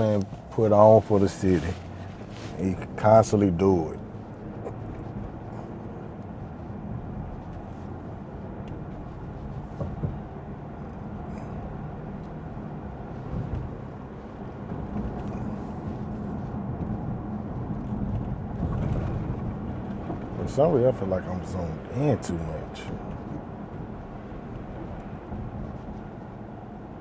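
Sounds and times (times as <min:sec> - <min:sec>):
car engine hum: 0:00.0 - 0:27.0
tyre noise on wet road: 0:00.0 - 0:27.0.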